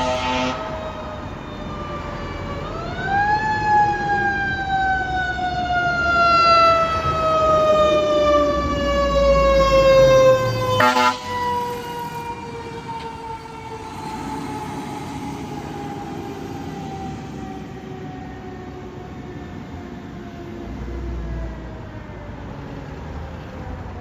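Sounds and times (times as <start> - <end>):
horn blast: 0.0 - 1.1, 10.8 - 11.5
mechanical siren wailing: 0.0 - 19.4.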